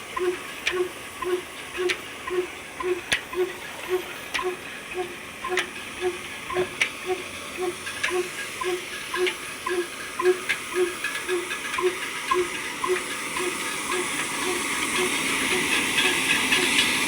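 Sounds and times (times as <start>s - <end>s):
old diesel engine running: 0.0s - 17.0s.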